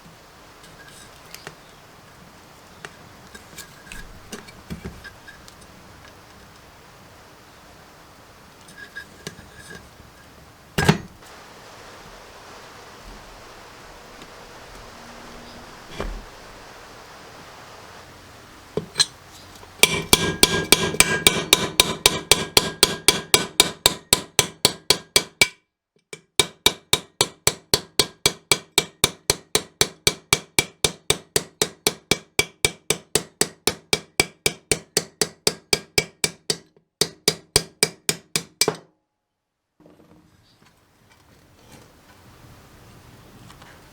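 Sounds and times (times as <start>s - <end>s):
hammer striking metal: 19.8s - 25.6s.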